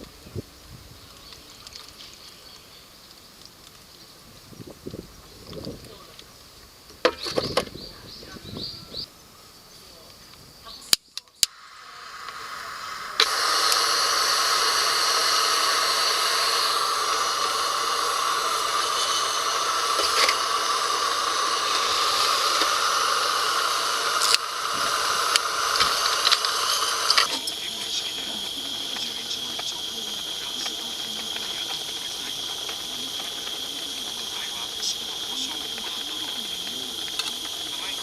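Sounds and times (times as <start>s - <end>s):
campfire crackling and hissing: 0.0s - 7.4s, 9.0s - 38.0s
thin steady high tone: 9.5s - 38.0s.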